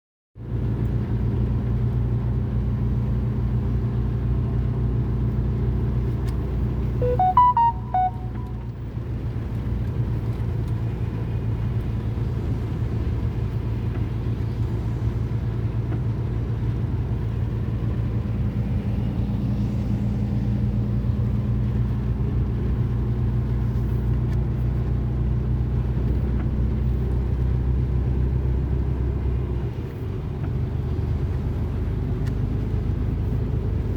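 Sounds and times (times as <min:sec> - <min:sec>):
rising electronic notes: 0:07.0 - 0:08.6.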